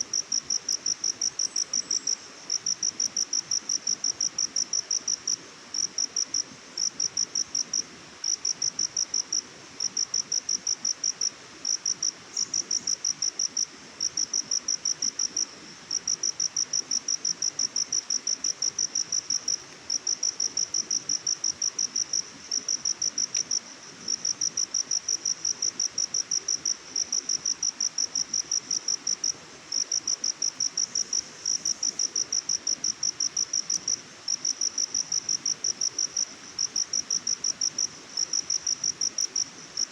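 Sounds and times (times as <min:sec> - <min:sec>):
faint forest hiss: 0:00.0 - 0:39.9
insect chirping: 0:00.1 - 0:39.9.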